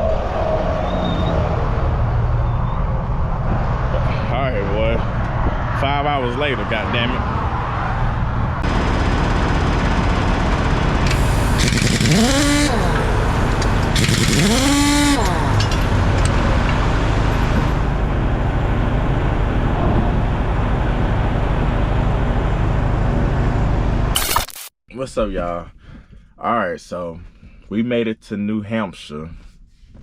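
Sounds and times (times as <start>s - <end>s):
rising whines: 0.0s - 4.0s, 7.2s - 24.1s
diesel truck engine running: 8.6s - 24.2s.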